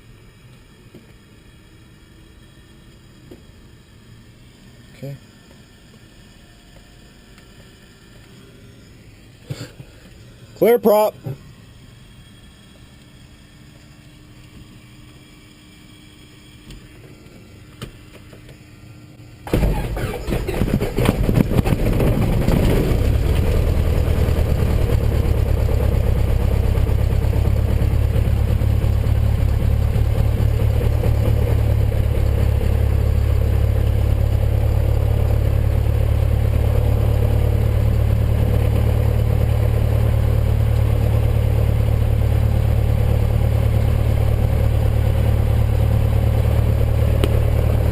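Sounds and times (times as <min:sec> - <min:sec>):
piston aircraft engine starting: 0:19.3 - 0:47.9.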